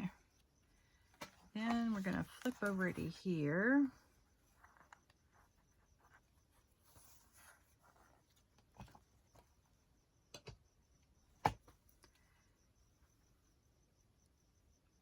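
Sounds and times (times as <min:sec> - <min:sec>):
faint paper rustling: 0:00.8 - 0:09.7.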